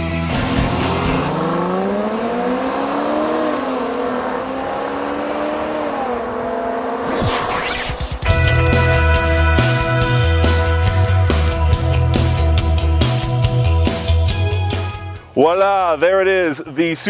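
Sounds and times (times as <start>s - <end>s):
sports car engine accelerating: 0.2s - 9.1s
falling whoosh: 7.0s - 8.6s.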